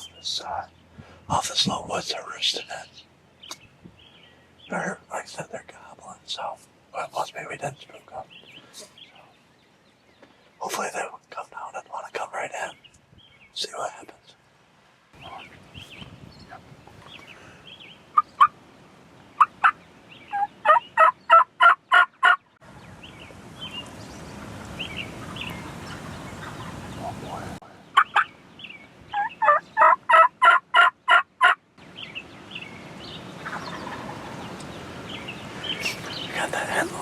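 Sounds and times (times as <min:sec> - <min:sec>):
faint turkey calls: 0:15.2 - 0:18.6, 0:25.2 - 0:28.3, 0:29.1 - 0:31.6, 0:33.4 - 0:34.7
turkey yelping: 0:19.4 - 0:22.4, 0:25.2 - 0:28.3, 0:29.1 - 0:31.6, 0:33.4 - 0:34.4.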